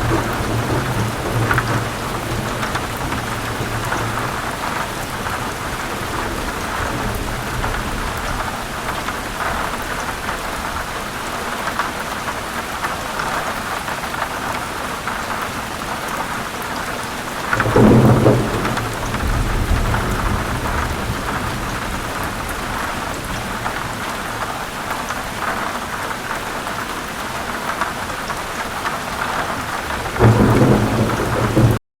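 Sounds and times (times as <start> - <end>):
thunder rumbling: 0.0 - 10.9, 17.4 - 24.6, 29.3 - 31.8
heavy rain falling: 0.0 - 31.8.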